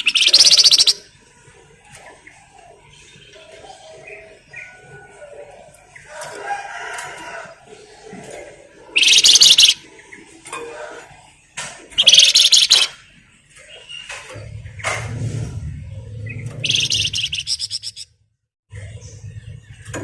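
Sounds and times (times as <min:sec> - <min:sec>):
songbird chattering: 0:00.0 - 0:01.1, 0:08.9 - 0:09.9, 0:12.0 - 0:13.0, 0:16.6 - 0:18.1.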